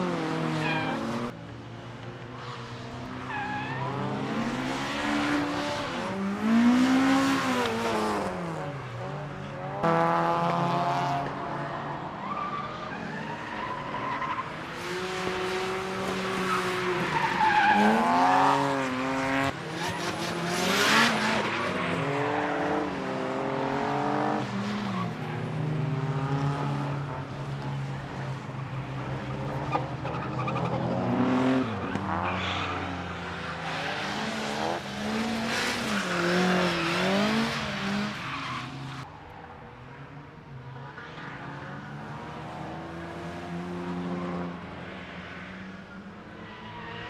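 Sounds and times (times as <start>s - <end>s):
tyres skidding and squealing: 0.0s - 1.4s, 2.4s - 8.5s, 11.5s - 39.6s, 44.9s - 47.0s
car engines revving: 0.0s - 47.0s.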